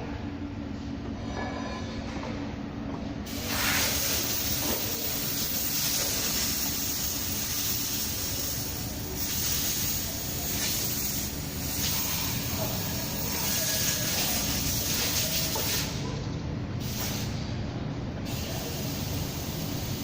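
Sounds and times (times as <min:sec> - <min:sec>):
spraying hiss: 0:03.3 - 0:16.0, 0:16.8 - 0:17.4, 0:18.2 - 0:20.0.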